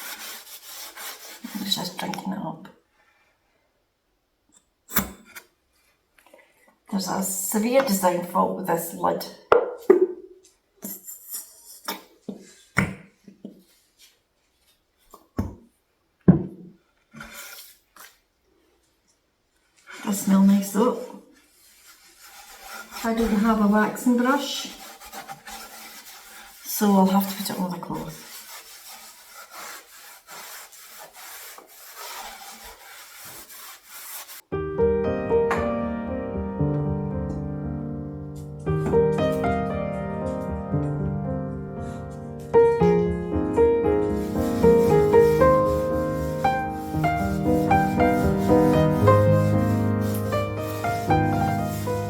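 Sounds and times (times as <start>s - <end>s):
cloth rubbing wood: 0.0s - 1.9s, 21.4s - 34.5s, 41.8s - 52.0s
piano music: 34.5s - 52.0s
brief rubbing sound: 44.0s - 52.0s.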